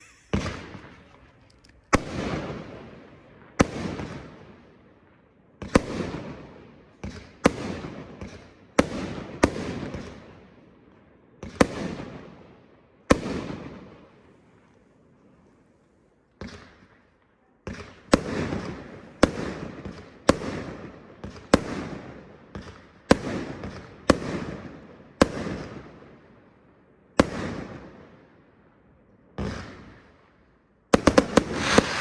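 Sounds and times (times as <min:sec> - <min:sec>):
firework bangs: 0:31.0 - 0:32.0
firework crackling: 0:31.0 - 0:32.0.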